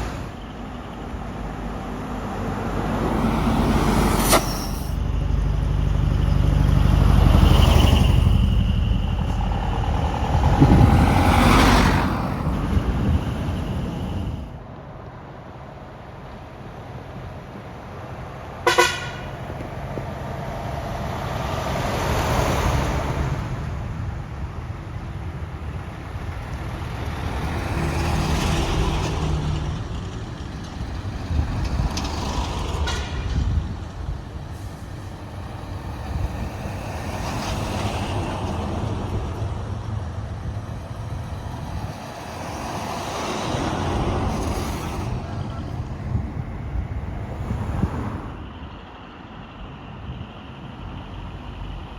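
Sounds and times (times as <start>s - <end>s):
diesel trucks driving past: 0.0s - 51.9s
loud horn blast: 18.6s - 19.4s, 32.8s - 33.4s.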